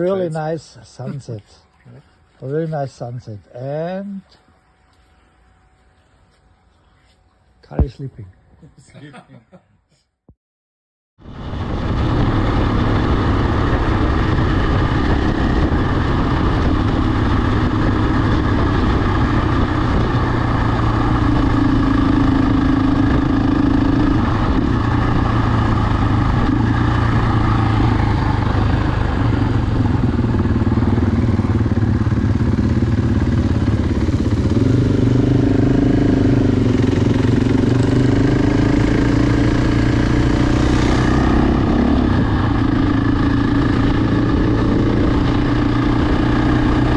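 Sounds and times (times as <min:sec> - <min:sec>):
vehicle engine running: 0:11.2 - 0:46.9.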